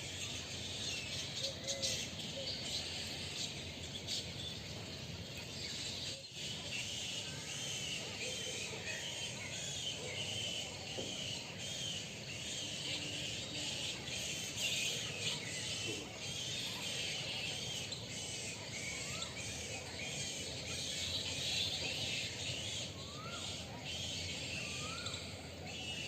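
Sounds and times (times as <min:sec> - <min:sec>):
small birds chirping: 0:00.0 - 0:26.0
rising bird calls: 0:05.8 - 0:26.0.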